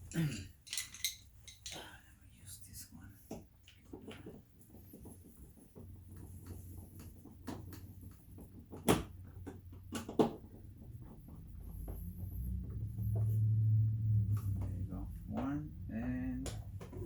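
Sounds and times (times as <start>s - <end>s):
low hum: 11.5s - 16.9s.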